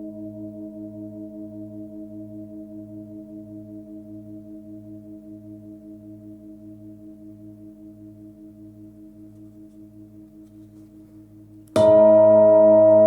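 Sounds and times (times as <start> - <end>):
singing bowl ringing: 11.8 - 13.0.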